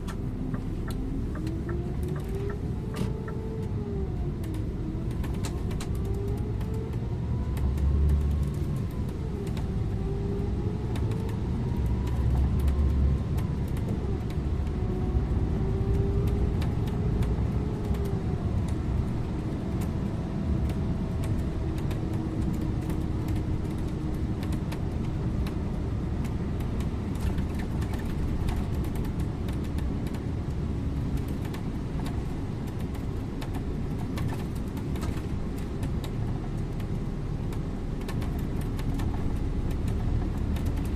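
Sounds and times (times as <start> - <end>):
bus engine and road rumble: 0.0 - 40.9
light clicks and rattles: 15.8 - 40.9.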